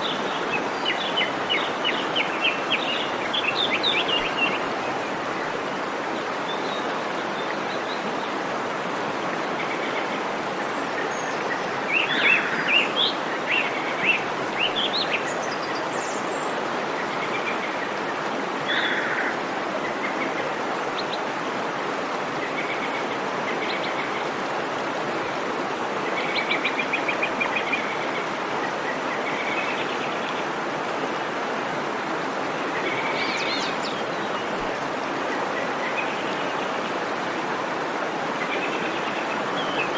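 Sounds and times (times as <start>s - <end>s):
waterfall rushing: 0.0s - 39.9s
birds calling: 10.9s - 21.3s.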